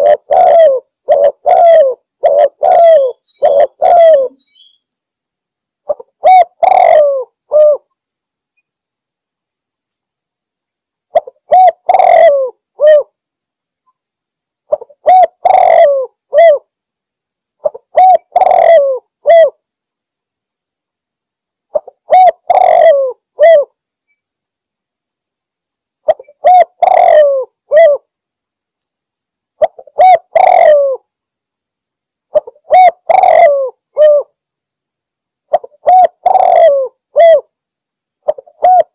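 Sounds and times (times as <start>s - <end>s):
dove cooing: 0.0s - 4.4s, 5.9s - 7.9s, 11.1s - 13.1s, 14.7s - 16.7s, 17.6s - 19.6s, 21.7s - 23.8s, 26.1s - 28.1s, 29.6s - 31.0s, 32.3s - 34.3s, 35.5s - 37.5s, 38.2s - 38.9s.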